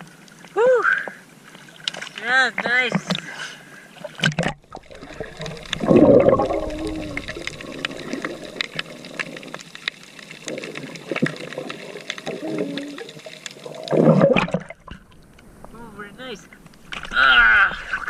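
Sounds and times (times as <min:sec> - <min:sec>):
seawater splashing: 0:01.6 - 0:18.0
small crackling clicks: 0:06.8 - 0:14.0, 0:16.4 - 0:17.2.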